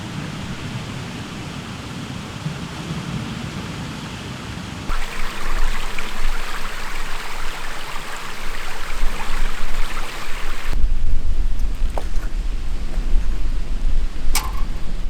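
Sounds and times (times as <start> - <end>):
stream rushing: 0.0 - 2.4, 4.9 - 10.8.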